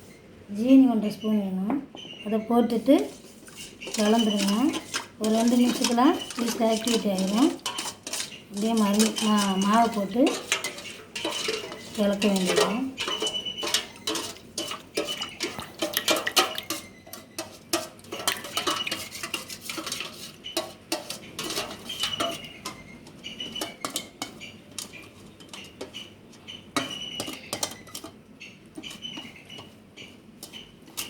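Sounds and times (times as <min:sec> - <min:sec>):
spoon clinking against vessel: 0:03.8 - 0:26.1, 0:26.8 - 0:28.2.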